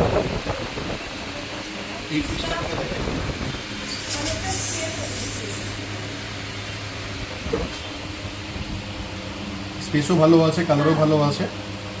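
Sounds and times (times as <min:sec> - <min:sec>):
steady low hum: 0:00.0 - 0:12.0
high hiss: 0:03.8 - 0:06.0.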